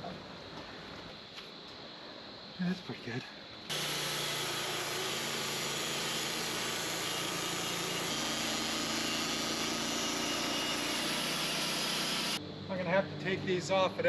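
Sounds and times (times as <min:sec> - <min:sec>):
bandsaw sawmill running: 0:03.7 - 0:12.4.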